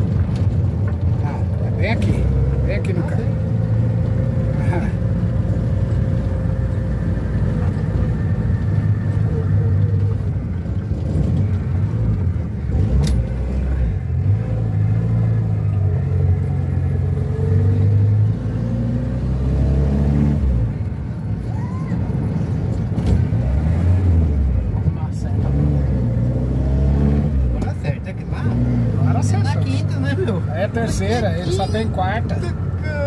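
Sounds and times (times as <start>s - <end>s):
car engine accelerating and shifting: 0.0s - 33.0s
sharp click: 13.0s - 13.2s.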